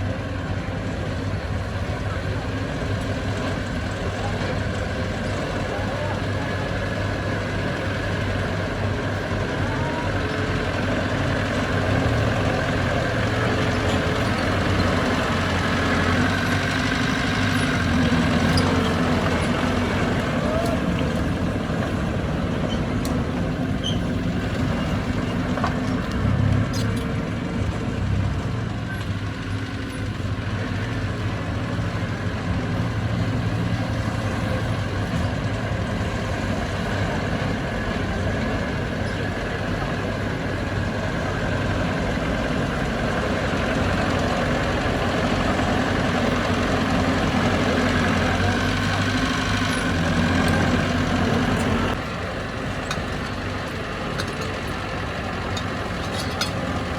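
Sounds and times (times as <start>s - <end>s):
diesel machinery engine running: 0.0s - 56.9s.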